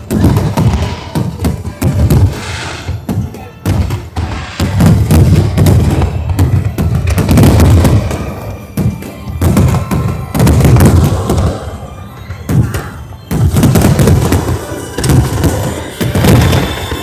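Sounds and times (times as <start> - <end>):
fireworks booming: 0.0 - 17.0.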